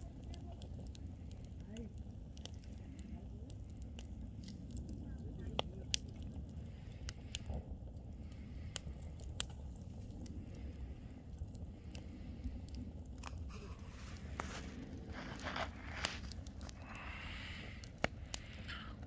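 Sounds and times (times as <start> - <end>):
bonfire crackling and popping: 0.0 - 19.0
rustling noise: 13.4 - 16.8.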